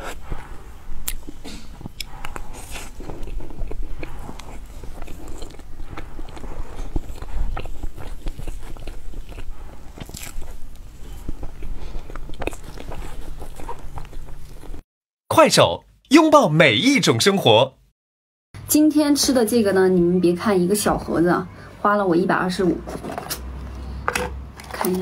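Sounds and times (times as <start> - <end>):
person chewing cake: 0.0 - 14.8
mouth clicks and smacks: 1.0 - 14.8.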